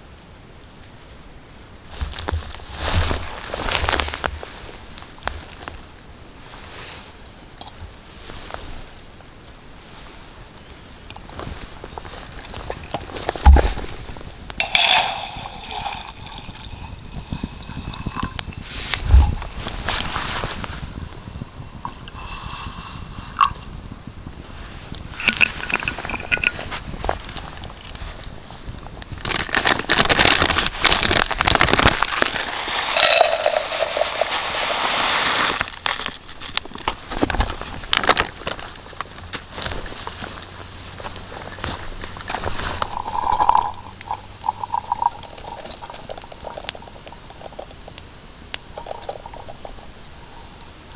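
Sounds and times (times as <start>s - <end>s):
dense crackling and rustling: 1.9s - 7.2s, 11.1s - 50.9s
water splashing: 12.4s - 27.4s, 30.2s - 36.3s, 41.8s - 50.8s.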